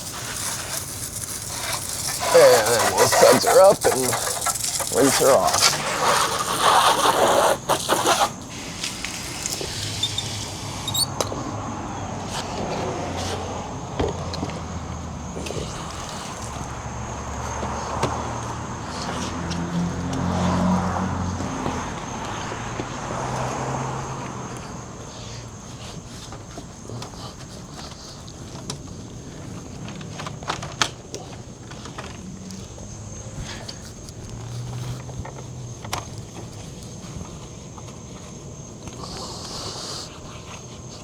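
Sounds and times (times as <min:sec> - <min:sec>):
vehicle engine humming: 0:00.0 - 0:06.7.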